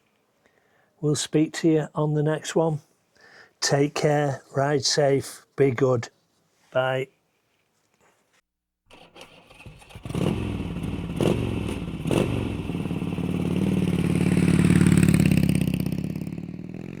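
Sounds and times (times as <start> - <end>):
motorcycle engine running: 9.0 - 17.0.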